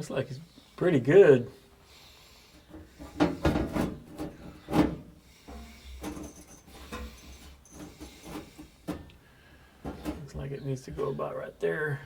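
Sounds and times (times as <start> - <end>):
sheet metal knocking and scraping: 2.7 - 9.1, 9.8 - 10.5.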